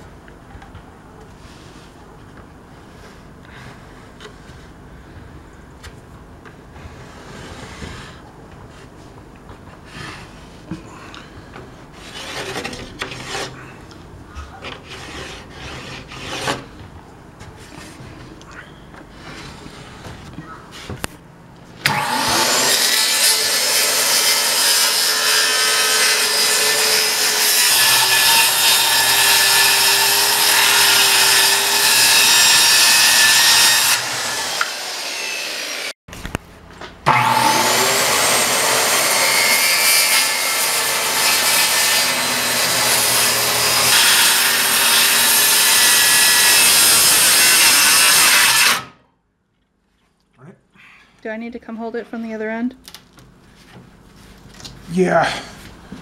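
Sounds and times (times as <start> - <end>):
power saw cutting wood: 21.8 - 36.0, 37.1 - 49.0.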